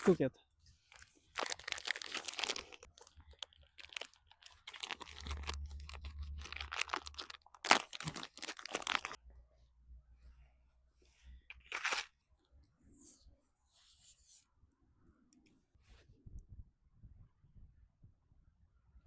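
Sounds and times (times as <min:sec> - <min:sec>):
plastic packaging crinkling and tearing: 0:00.8 - 0:09.2, 0:11.6 - 0:12.2.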